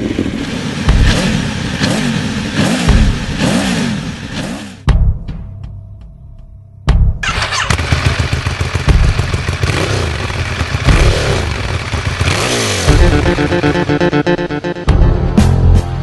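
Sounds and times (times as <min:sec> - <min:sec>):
motorcycle engine revving: 0:00.0 - 0:04.9, 0:07.2 - 0:14.8.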